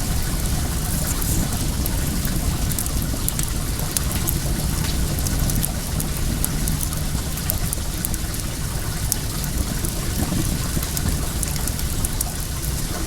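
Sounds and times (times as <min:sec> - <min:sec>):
water running: 0:00.0 - 0:13.0
wood fire crackling: 0:00.0 - 0:13.0.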